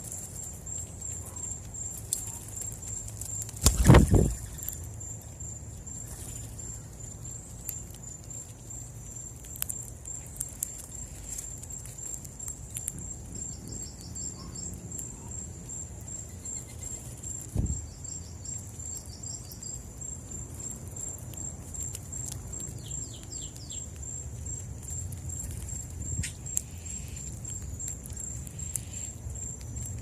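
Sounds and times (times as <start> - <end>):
crickets chirring: 0.0 - 30.0
bird trill: 3.6 - 4.8, 16.2 - 19.7.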